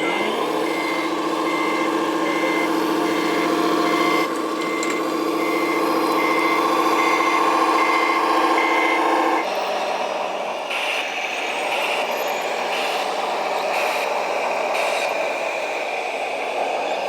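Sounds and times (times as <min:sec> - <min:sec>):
reversing beeper: 0:00.0 - 0:09.4
simulated truck engine sound: 0:00.0 - 0:17.0.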